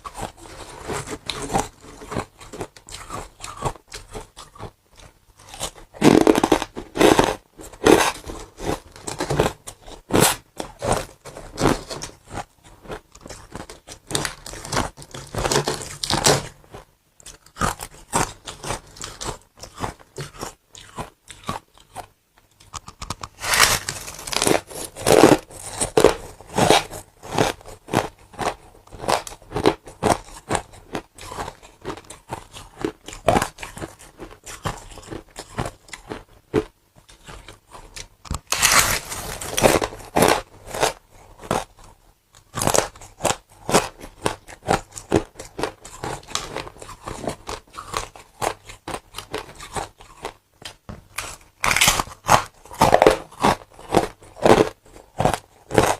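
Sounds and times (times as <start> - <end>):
person crunching ice: 23.0 - 36.2, 38.3 - 41.7, 51.2 - 55.9.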